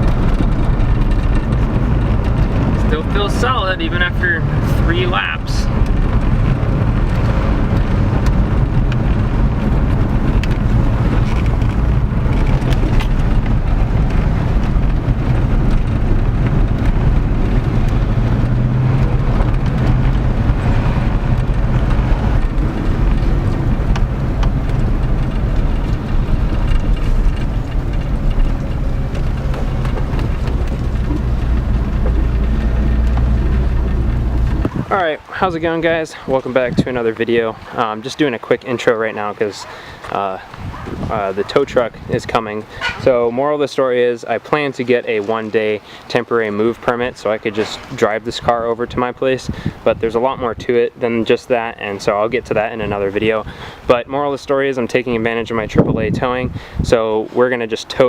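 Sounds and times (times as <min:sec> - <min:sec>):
car engine running: 0:00.0 - 0:43.3
road and wind noise: 0:00.0 - 0:58.0.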